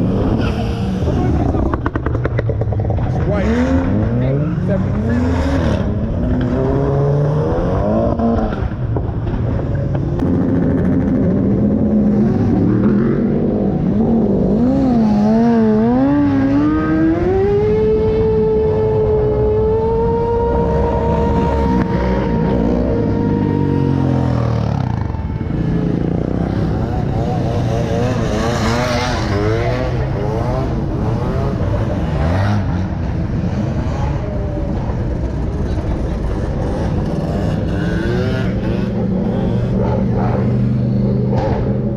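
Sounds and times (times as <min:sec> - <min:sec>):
car engines revving: 0:00.0 - 0:41.9
voices: 0:12.0 - 0:41.9.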